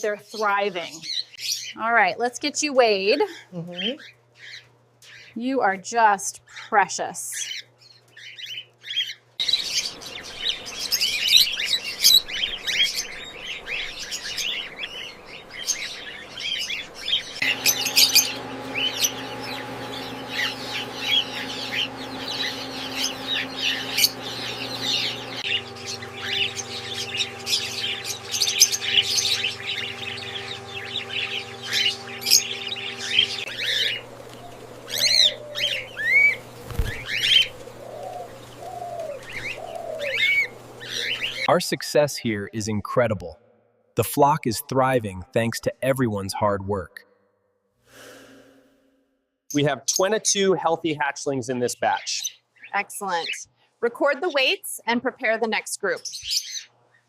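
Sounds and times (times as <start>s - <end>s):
flock of cockatiels chirping: 7.3s - 41.5s
steady low hum: 9.6s - 42.8s.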